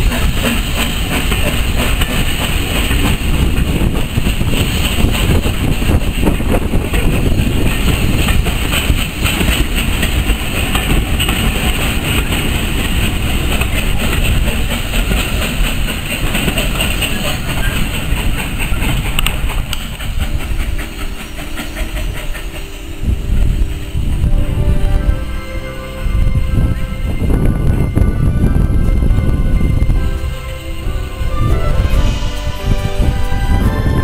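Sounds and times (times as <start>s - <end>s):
wheels clicking over rail joints: 0.0s - 24.2s
train coaches rumbling past: 0.0s - 34.0s.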